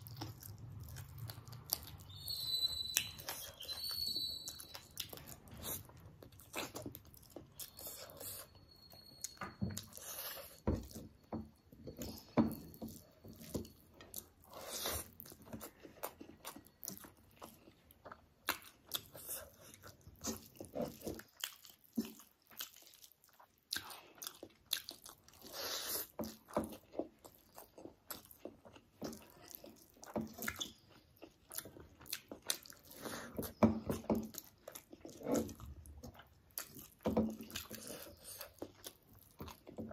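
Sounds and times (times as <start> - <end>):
person chewing and biting food: 0.0 - 8.6, 11.8 - 39.9.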